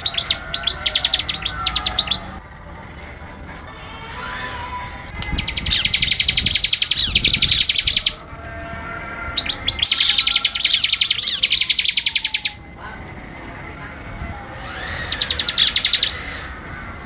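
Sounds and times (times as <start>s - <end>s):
bird singing fast trills: 0.0s - 2.4s, 5.2s - 8.2s, 9.3s - 12.6s, 14.6s - 16.5s.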